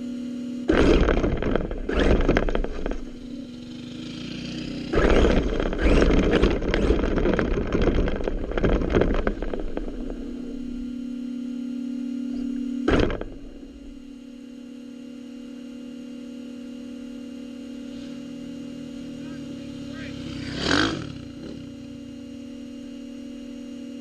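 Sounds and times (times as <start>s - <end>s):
engine idling hum: 0.0s - 24.0s
rough engine and driving noise: 0.7s - 11.3s, 16.7s - 24.0s.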